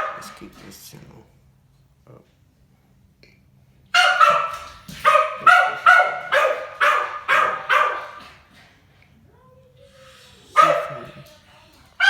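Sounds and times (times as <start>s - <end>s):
dog barking: 0.0s - 0.5s, 3.9s - 8.5s, 10.5s - 11.3s.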